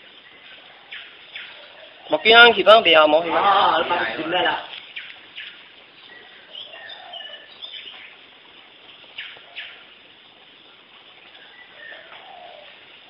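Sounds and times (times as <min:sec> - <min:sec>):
birds chirping: 0:00.0 - 0:08.3, 0:09.0 - 0:10.1, 0:11.2 - 0:13.0
steady hiss: 0:00.0 - 0:13.0.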